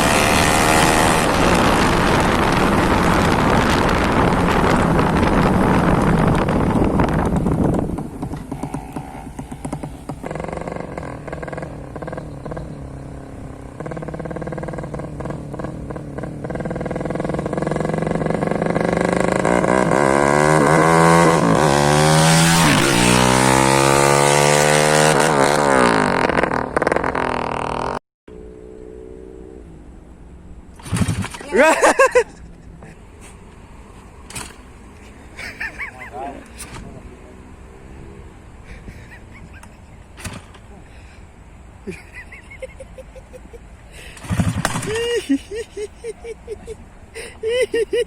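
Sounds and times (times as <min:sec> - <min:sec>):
motorcycle engine revving: 0:00.0 - 0:31.8, 0:44.1 - 0:46.2.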